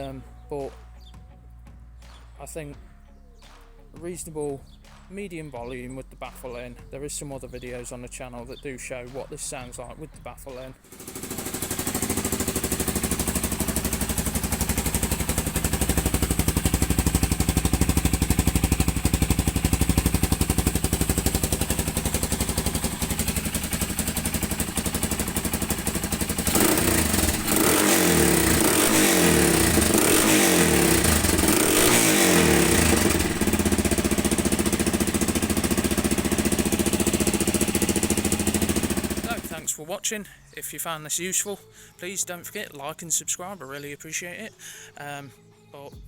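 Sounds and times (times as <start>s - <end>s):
motorcycle engine idling and revving: 10.6s - 39.8s.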